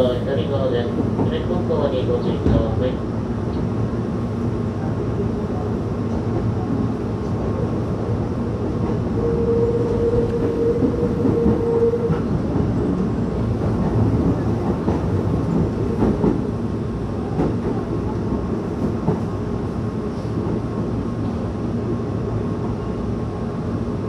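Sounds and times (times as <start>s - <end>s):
train wheels rumbling on rail: 0.0s - 24.0s
steady tone: 9.2s - 12.2s.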